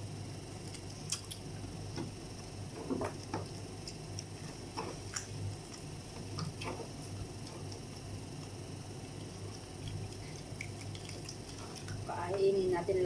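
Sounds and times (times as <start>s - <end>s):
steady low hum: 0.0s - 13.0s
people eating crunchy food: 0.5s - 12.4s.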